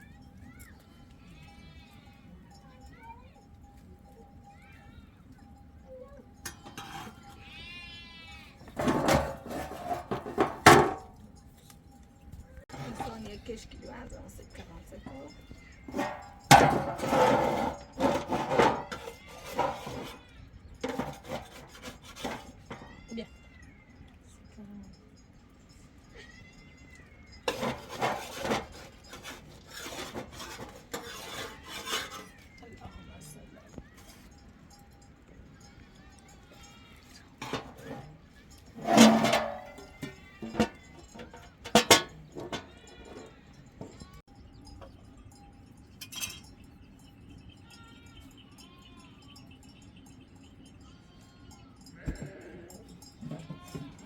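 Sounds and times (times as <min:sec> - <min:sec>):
livestock bleating: 0:06.6 - 0:09.0, 0:18.6 - 0:20.4, 0:50.9 - 0:54.0.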